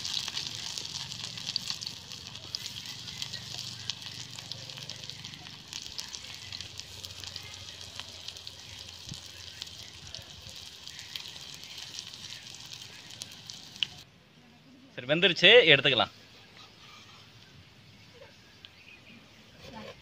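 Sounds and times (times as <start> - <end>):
hot oil sizzling and popping: 0.0 - 14.1.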